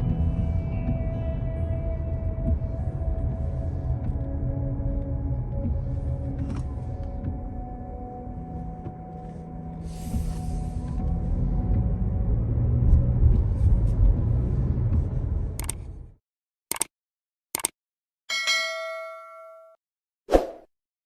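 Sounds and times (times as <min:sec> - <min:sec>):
short clicks: 0:15.6 - 0:15.8, 0:16.7 - 0:16.9, 0:17.5 - 0:17.8
ringing ding: 0:18.3 - 0:19.8.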